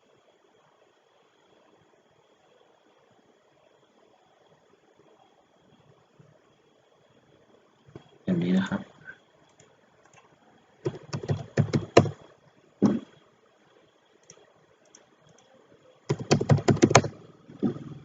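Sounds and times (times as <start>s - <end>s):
keyboard keys and mouse clicking: 10.9s - 12.2s, 14.2s - 18.0s.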